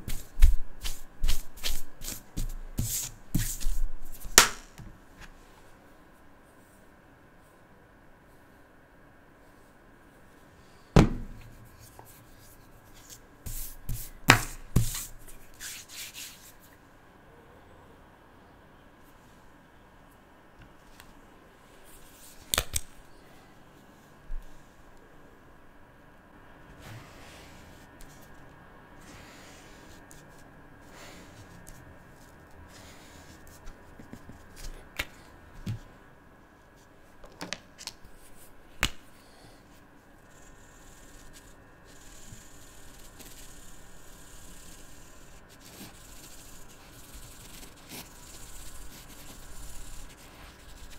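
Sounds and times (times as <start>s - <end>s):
hand rubbing across paper: 0.1s - 4.2s, 40.3s - 50.9s.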